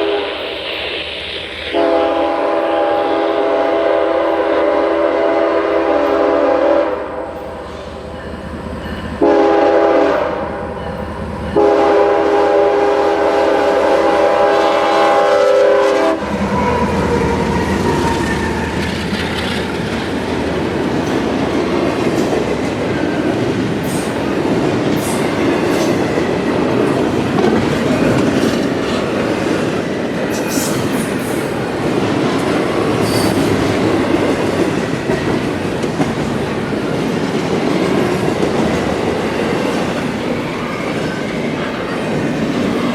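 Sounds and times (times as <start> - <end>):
locomotive horn blasts: 0.0 - 0.4, 1.7 - 7.5, 9.2 - 10.6, 11.6 - 18.6
freight train rumbling past: 0.0 - 42.9
high wheel squeals: 33.0 - 33.6.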